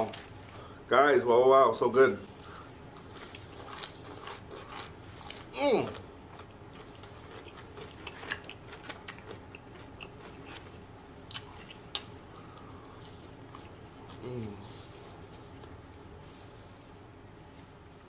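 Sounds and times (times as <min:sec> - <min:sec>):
chewing fries: 0:00.0 - 0:00.7, 0:02.4 - 0:17.0
mouth clicks and crunches: 0:03.0 - 0:15.8.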